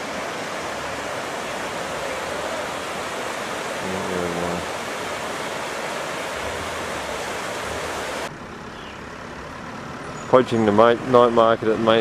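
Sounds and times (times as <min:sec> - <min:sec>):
creek water flowing: 0:00.0 - 0:08.3.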